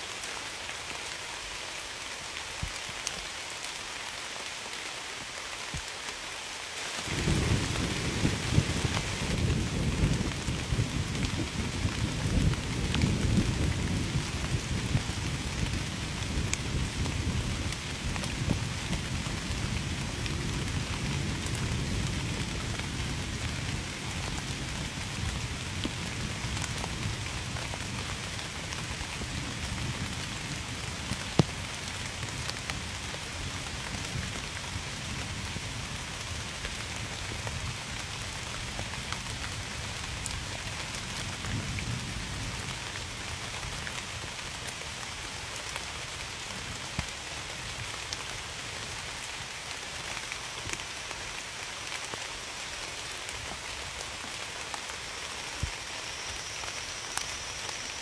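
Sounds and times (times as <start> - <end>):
heavy rain: 0.0 - 58.0
low thunder rumble: 7.1 - 28.0.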